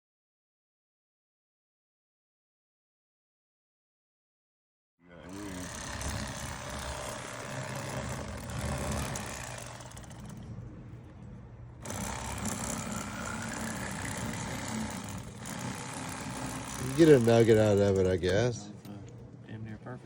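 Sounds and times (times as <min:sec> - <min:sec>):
low rumble with hum and hiss: 0:05.0 - 0:15.5, 0:16.6 - 0:20.0.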